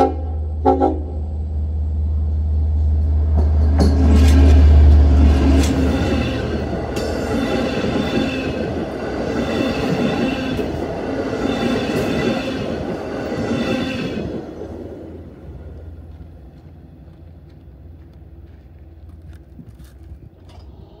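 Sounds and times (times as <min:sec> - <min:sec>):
train cars rumbling: 0:00.0 - 0:21.0.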